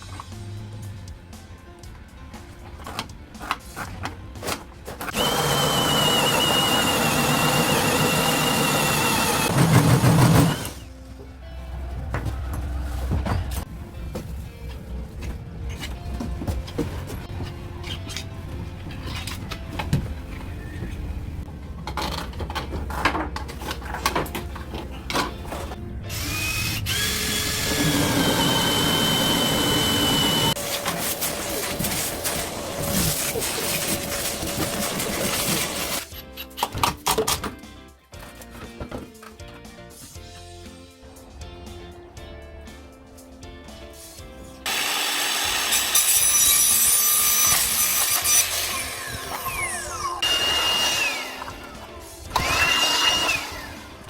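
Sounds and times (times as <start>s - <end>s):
quiet background music: 0.0s - 54.0s
power drill whining: 5.1s - 10.9s, 26.1s - 31.5s, 47.4s - 54.0s.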